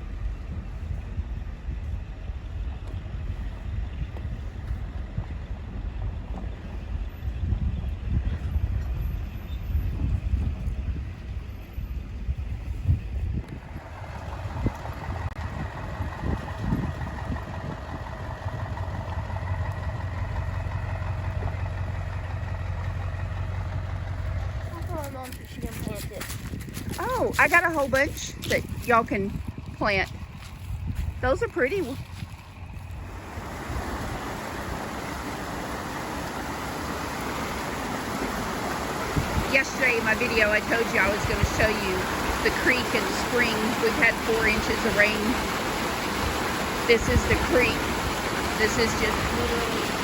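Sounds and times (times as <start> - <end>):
engine idling: 0.0 - 50.0
creek rushing: 33.0 - 50.0.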